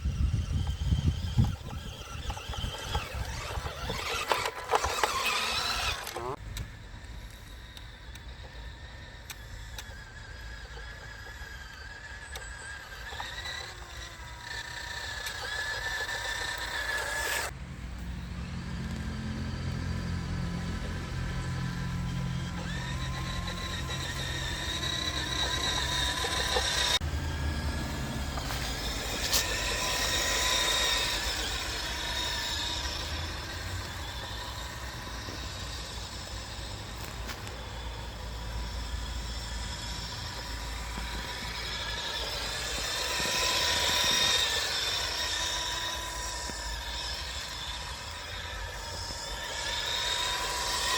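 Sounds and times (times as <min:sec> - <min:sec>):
model car motors whining: 0:00.0 - 0:50.9.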